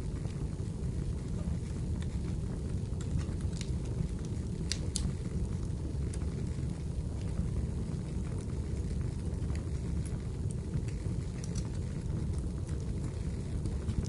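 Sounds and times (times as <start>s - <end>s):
fire crackling in fireplace: 0.0s - 14.0s.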